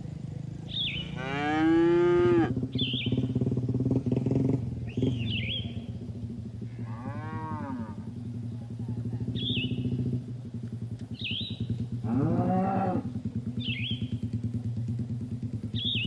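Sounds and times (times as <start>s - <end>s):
small engine running: 0.0s - 16.0s
bird chirps: 0.7s - 1.2s, 2.6s - 6.5s, 8.2s - 10.2s, 10.9s - 12.2s, 13.5s - 14.6s, 15.6s - 16.0s
cows mooing: 1.0s - 2.6s, 6.6s - 8.1s, 12.0s - 13.1s.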